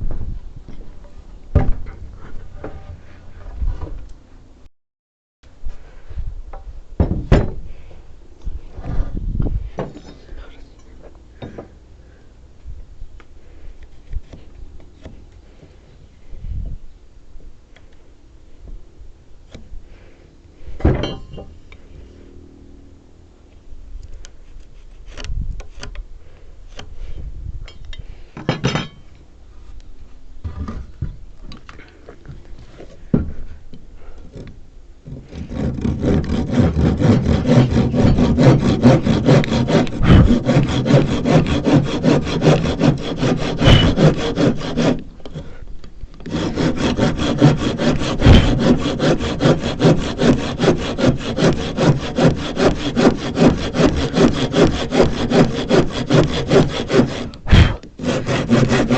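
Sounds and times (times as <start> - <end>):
handsaw cutting wood: 35.1 - 45.6, 46.2 - 58.9
knocks handling timber: 37.2 - 45.6, 46.2 - 58.9.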